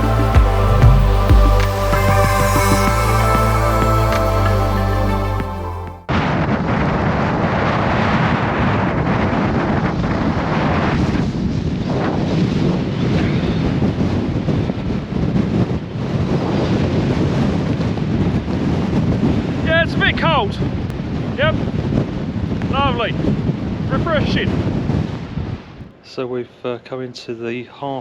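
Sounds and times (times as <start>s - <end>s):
background music: 0.0s - 6.1s
strong wind buffeting microphone: 6.1s - 25.9s.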